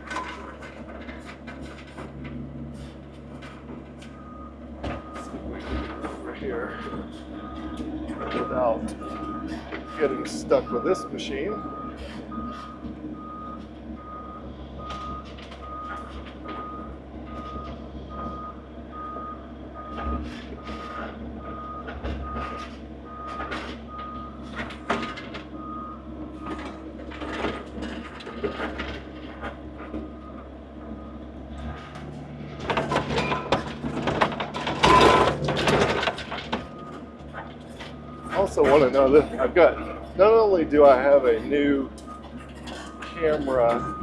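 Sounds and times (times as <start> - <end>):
skid steer engine running: 0.0 - 44.0
clanks and cracks: 31.9 - 38.0
backup alarm beeping: 34.7 - 36.1, 43.6 - 44.0.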